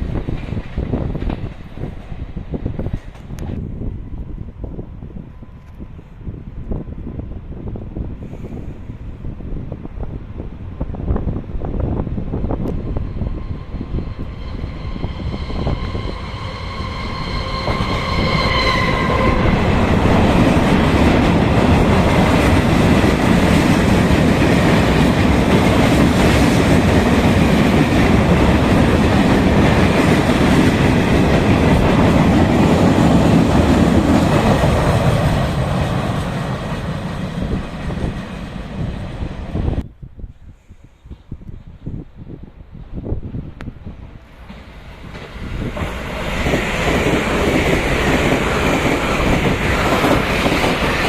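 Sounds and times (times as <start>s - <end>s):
train running past: 0.0s - 39.8s, 42.6s - 51.0s
train horn: 13.0s - 20.4s.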